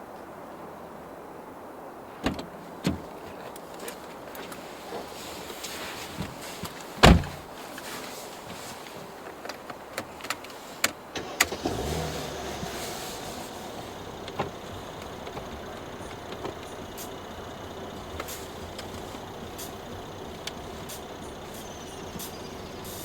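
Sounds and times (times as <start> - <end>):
heavy thump in car: 7.0 - 7.5, 11.6 - 23.0
sharp clicks from controls: 9.3 - 23.0
electric motor whir: 11.4 - 23.0.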